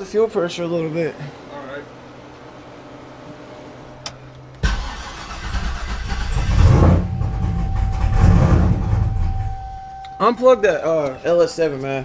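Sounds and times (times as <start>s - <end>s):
engine running loud and uneven: 6.0s - 9.6s.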